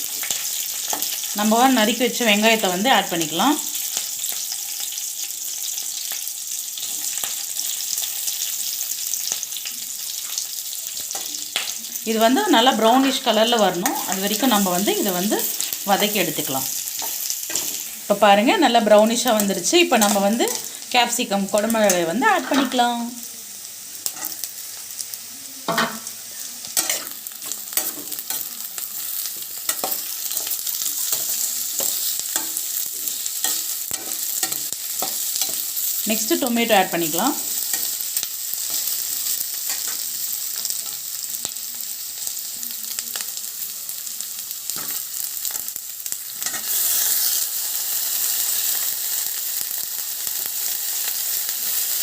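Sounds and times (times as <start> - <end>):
onions sizzling in hot oil: 0.0 - 52.0
spatula scraping and tapping pan: 25.7 - 26.1, 29.3 - 35.7.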